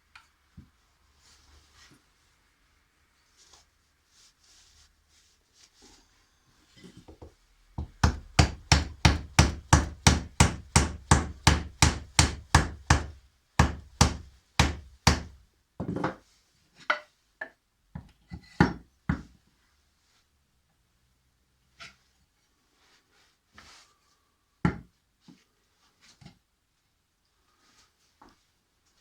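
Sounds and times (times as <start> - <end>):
hammer striking wood: 7.8 - 15.4.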